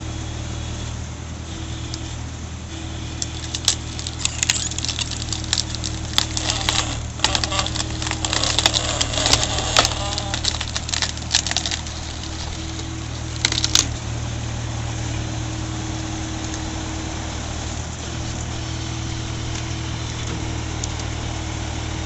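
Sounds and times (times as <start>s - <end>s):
wood-processing machine humming: 1.5s - 22.0s
wood cracking and splintering: 3.2s - 14.1s, 17.7s - 21.2s.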